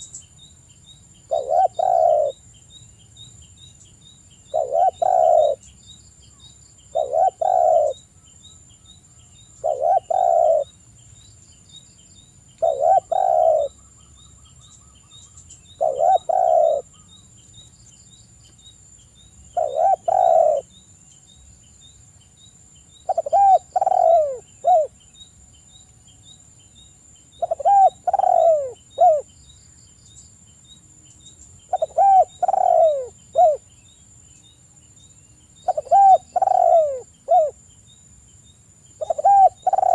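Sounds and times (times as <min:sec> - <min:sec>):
high insect drone: 0:00.0 - 0:39.9
dove cooing: 0:01.3 - 0:02.4, 0:04.5 - 0:05.6, 0:06.9 - 0:08.1, 0:09.6 - 0:10.7, 0:12.6 - 0:13.8, 0:15.8 - 0:17.1, 0:19.6 - 0:20.7, 0:23.1 - 0:24.9, 0:27.4 - 0:29.3, 0:31.7 - 0:33.6, 0:35.6 - 0:37.6, 0:39.0 - 0:39.9.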